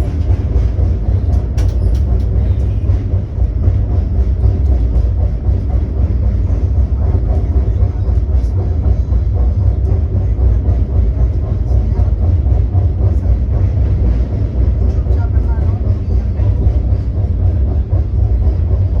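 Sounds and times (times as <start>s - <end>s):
moving train rumble: 0.0s - 19.0s.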